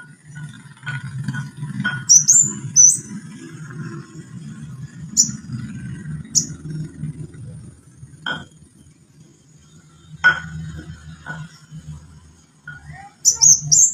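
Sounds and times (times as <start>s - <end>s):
bird chirp: 1.9s - 3.3s, 4.8s - 7.0s, 12.7s - 13.9s.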